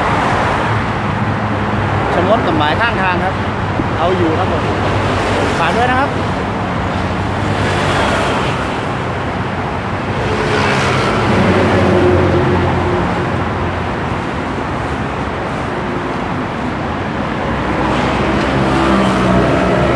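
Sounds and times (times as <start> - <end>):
vehicles going past: 0.0 - 19.9.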